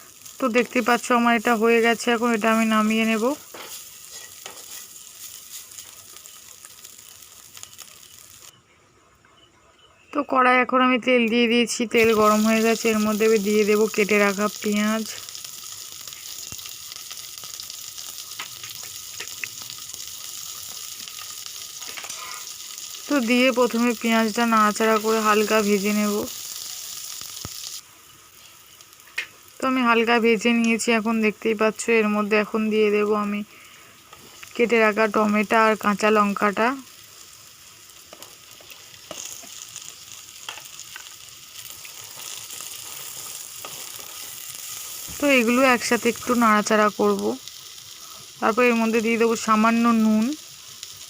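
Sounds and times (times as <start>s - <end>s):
onion sizzling in hot oil: 0.0s - 8.6s, 10.7s - 51.0s
small crackles: 0.0s - 8.6s, 11.3s - 51.0s.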